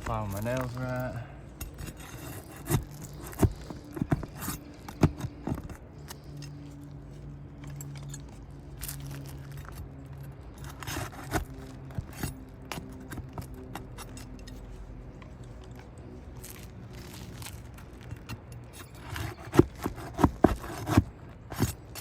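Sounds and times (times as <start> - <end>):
metal tool scraping shingles: 0.0 - 6.6, 10.4 - 14.8, 16.5 - 22.0
low steady hum: 0.0 - 22.0.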